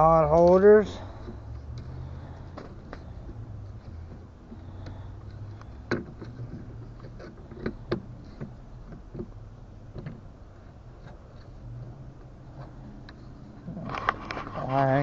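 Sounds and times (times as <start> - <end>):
low steady hum: 0.0 - 15.0
boat fittings clicking and knocking: 4.8 - 6.4.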